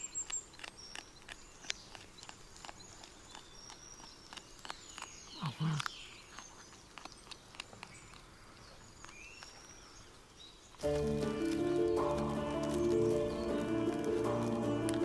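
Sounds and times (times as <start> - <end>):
small birds chirping: 0.0 - 15.0
animal scuffling through dry leaves: 10.8 - 15.0.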